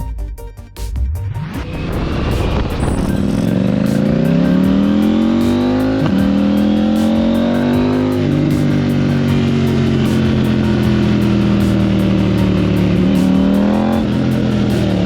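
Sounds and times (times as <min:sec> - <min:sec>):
motorcycle engine accelerating: 0:01.3 - 0:15.0.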